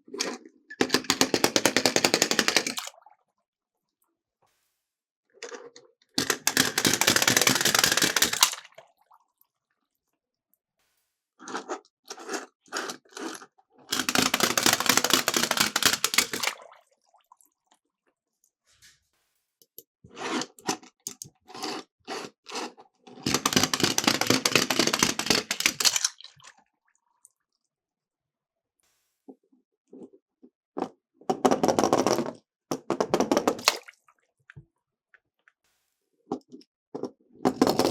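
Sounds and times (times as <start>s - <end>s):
toy cars rolling down plastic track: 0.2s - 2.9s, 5.5s - 8.7s, 13.9s - 16.6s, 23.2s - 26.2s, 37.5s - 37.9s
light clicks and knocks of toy cars: 5.4s - 8.6s, 13.9s - 16.5s, 23.3s - 26.2s.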